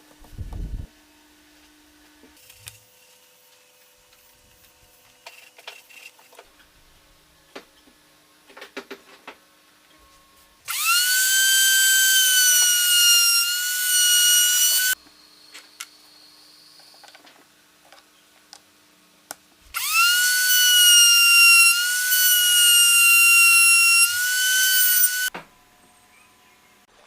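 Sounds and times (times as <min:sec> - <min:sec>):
power tool motor whining: 0:10.7 - 0:15.0, 0:19.7 - 0:25.3.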